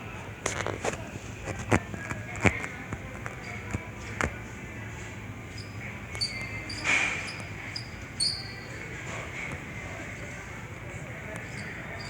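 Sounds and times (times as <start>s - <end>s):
ceiling fans humming: 0.0s - 12.0s
high squeaks: 5.5s - 8.8s.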